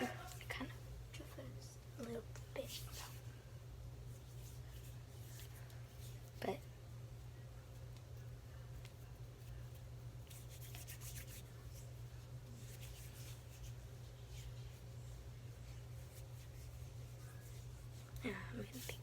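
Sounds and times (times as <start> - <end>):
steady low hum: 0.0 - 19.0
hands rubbing soft dough: 7.7 - 19.0.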